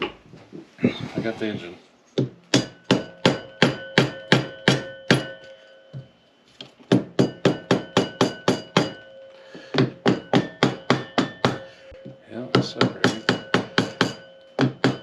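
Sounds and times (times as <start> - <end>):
hammer blows on metal engine: 6.9 - 15.0.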